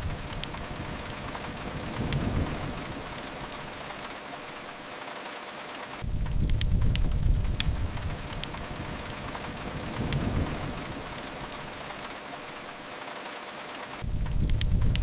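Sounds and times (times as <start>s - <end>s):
fireplace crackles: 0.0s - 15.0s
steady rain hiss: 0.0s - 15.0s
low rumble: 6.0s - 12.0s.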